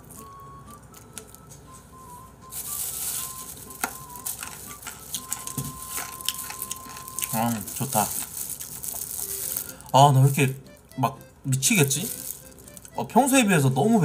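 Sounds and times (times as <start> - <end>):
faint music melody: 0.0 - 14.0
crispy chicken crunching: 2.5 - 13.0.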